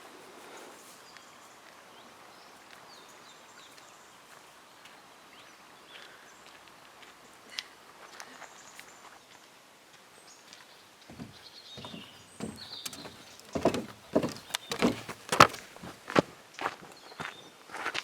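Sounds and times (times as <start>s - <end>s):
footsteps: 11.1s - 16.3s.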